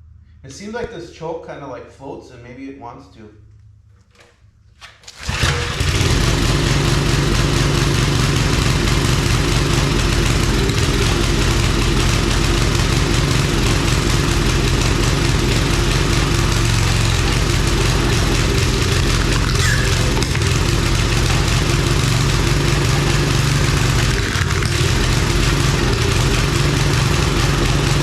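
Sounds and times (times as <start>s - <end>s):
small engine running: 5.2s - 28.0s.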